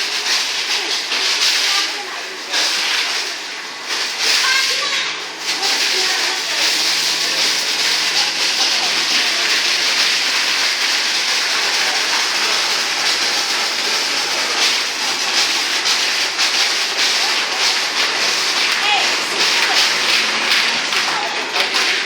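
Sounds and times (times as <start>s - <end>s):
car wash jets hissing: 0.0s - 22.0s.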